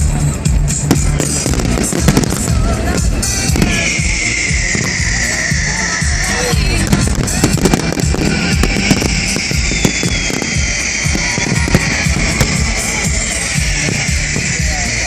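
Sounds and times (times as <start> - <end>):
fireworks bangs and crackles: 0.0 - 15.0
music playing: 0.0 - 15.0.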